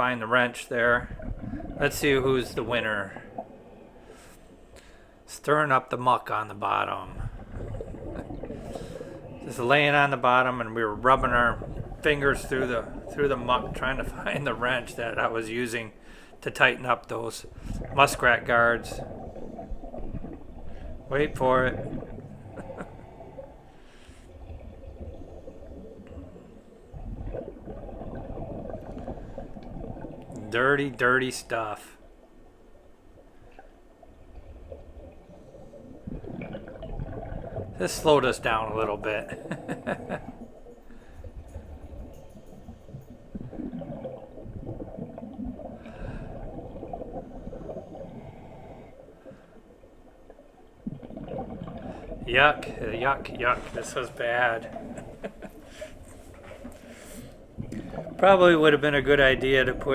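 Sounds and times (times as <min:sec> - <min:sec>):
muffled underwater water noise: 0:00.0 - 0:59.9
scuba breathing: 0:03.1 - 0:05.3, 0:07.1 - 0:09.6, 0:16.0 - 0:16.4, 0:17.4 - 0:18.0, 0:19.0 - 0:30.1, 0:39.2 - 0:49.9, 0:51.1 - 0:58.2.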